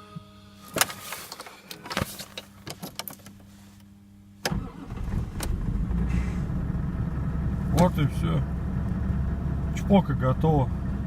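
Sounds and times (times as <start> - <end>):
car engine starting and idling: 4.4 - 11.0.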